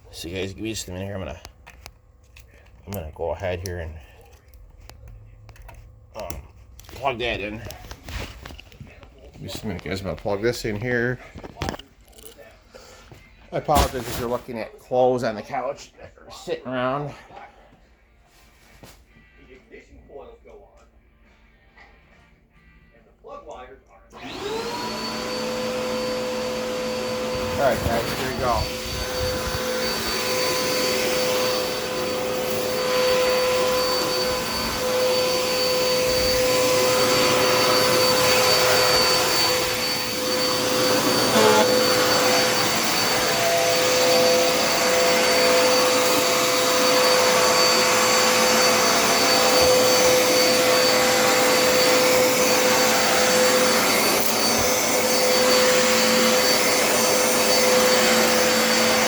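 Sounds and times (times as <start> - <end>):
vacuum cleaner motor whine: 24.1 - 59.0.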